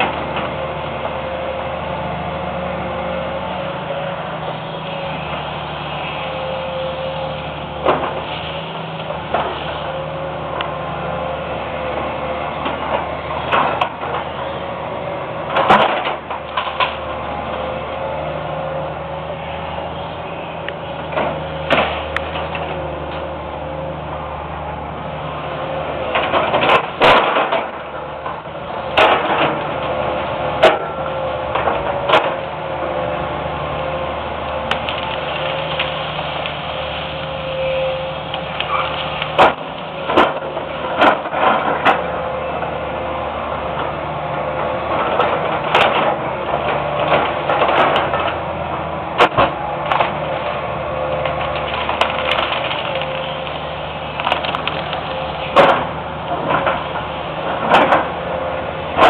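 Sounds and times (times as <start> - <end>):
excavator diesel engine: 0.0 - 59.0
branches cracking and snapping: 33.8 - 42.1, 49.2 - 58.1.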